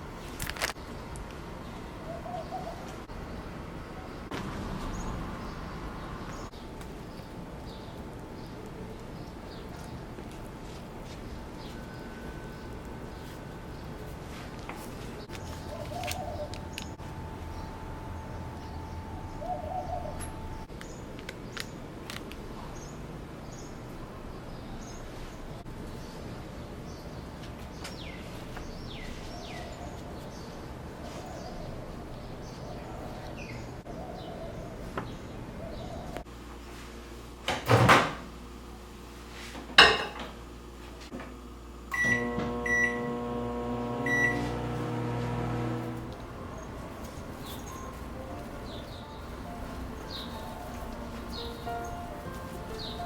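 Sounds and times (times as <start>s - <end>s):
steady hum: 5.8s - 20.7s, 40.5s - 53.0s
microwave oven humming: 40.3s - 52.2s
keypad beeps: 44.1s - 44.4s.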